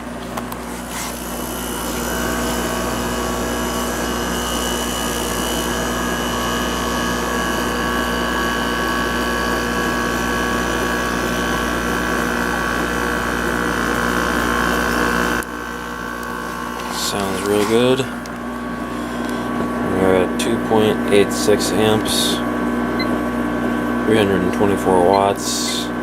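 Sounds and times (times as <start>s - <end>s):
compressor hum: 0.0s - 26.0s
window air conditioner humming: 0.0s - 26.0s.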